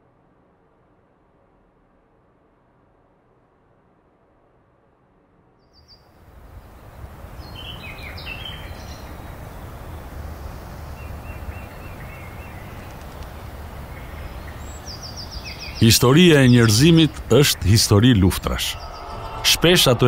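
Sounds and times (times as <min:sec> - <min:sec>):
steady outdoor noise: 0:00.0 - 0:20.0
small birds chirping: 0:05.7 - 0:20.0.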